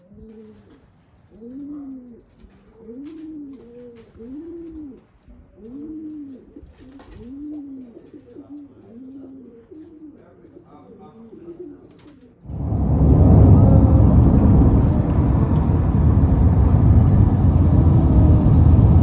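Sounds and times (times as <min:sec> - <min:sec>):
pigeons cooing: 0:01.3 - 0:12.3.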